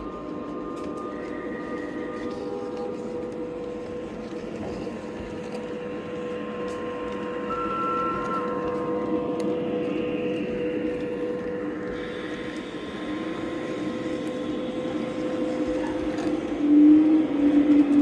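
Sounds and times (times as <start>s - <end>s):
model train rolling on track: 0.0s - 18.0s
short high steady tone: 7.4s - 9.1s.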